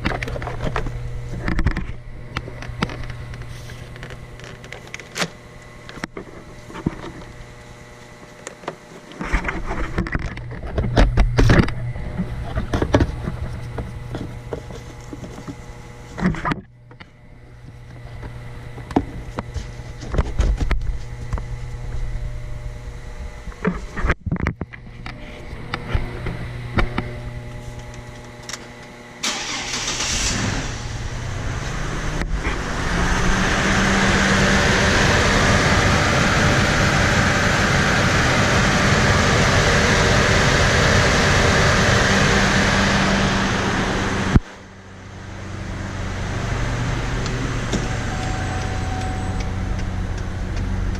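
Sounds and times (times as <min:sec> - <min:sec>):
scattered clicks and knocks: 0:08.4 - 0:15.6, 0:23.6 - 0:24.9
car engine idling: 0:29.2 - 0:50.9
engine revving: 0:29.2 - 0:50.9.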